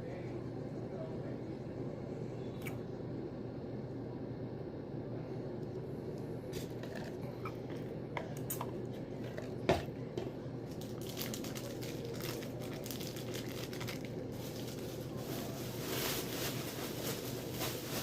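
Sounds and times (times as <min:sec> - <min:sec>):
steady low hum: 0:00.0 - 0:18.0
crinkling noises: 0:05.6 - 0:18.0
person chewing food: 0:05.7 - 0:10.4.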